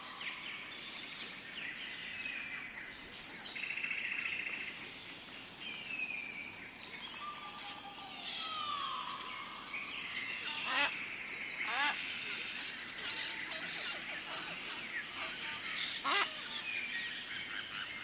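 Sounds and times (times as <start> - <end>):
birds calling: 7.0 - 18.0.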